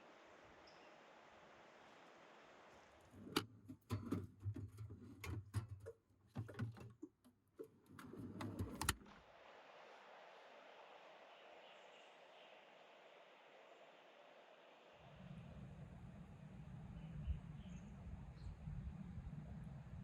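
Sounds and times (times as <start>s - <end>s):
sharp clicks and knocks: 3.2s - 9.0s.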